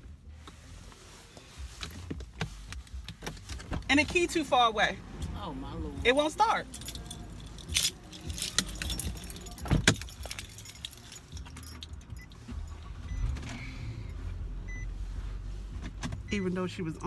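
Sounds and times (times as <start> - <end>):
car keys jangling: 1.5 - 13.6.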